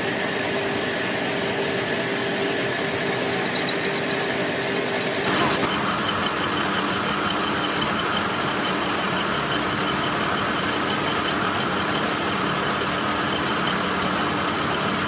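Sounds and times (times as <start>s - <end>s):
machine humming: 4.8s - 14.7s.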